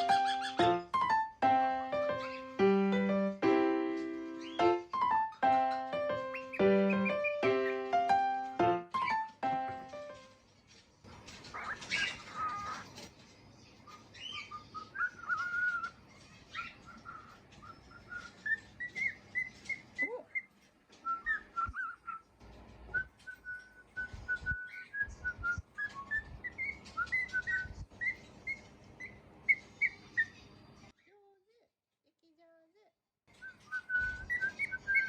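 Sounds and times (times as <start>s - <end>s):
cockatiel whistling: 0.0s - 1.2s, 4.0s - 9.3s, 13.9s - 22.3s, 22.9s - 30.4s, 33.4s - 35.0s.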